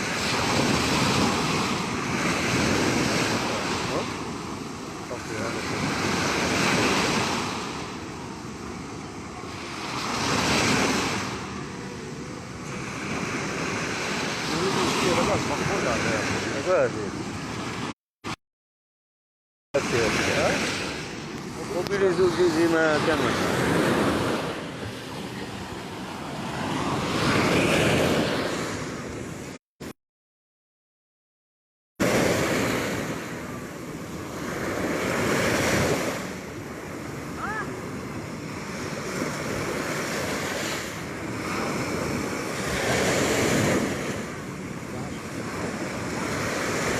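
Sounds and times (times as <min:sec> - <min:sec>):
wind on microphone: 0:00.0 - 0:17.9
sea surf washing ashore: 0:00.0 - 0:18.4, 0:19.8 - 0:29.6, 0:32.0 - 0:46.9.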